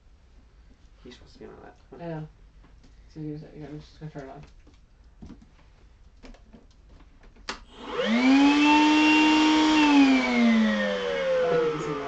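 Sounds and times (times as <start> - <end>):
vacuum cleaner motor whine: 7.7 - 12.0.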